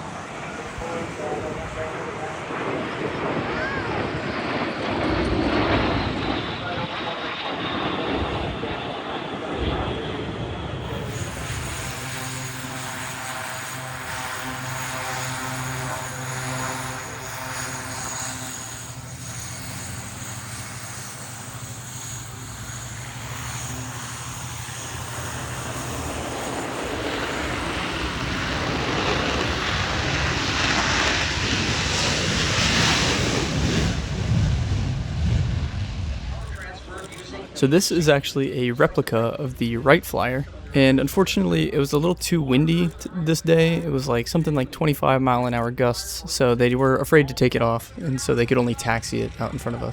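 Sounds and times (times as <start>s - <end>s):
aircraft engine hum: 0.0s - 49.9s
rushing noise: 10.7s - 36.9s.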